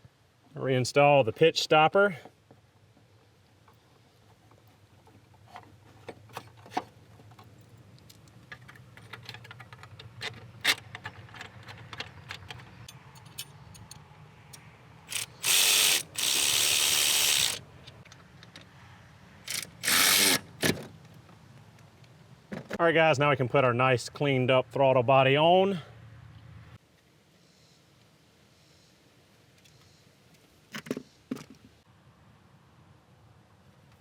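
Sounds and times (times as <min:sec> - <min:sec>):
power ratchet running: 0:15.1 - 0:17.6, 0:19.5 - 0:20.6
ratchet clicks: 0:15.1 - 0:18.0, 0:19.5 - 0:20.4.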